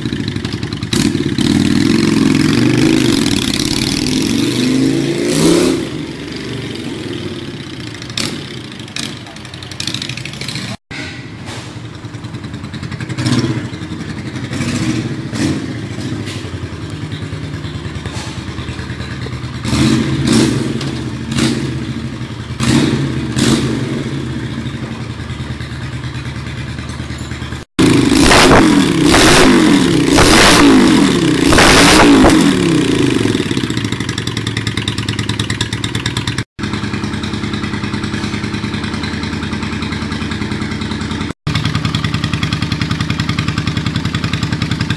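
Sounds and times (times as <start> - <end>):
motorcycle engine idling and revving: 0.0 - 44.9.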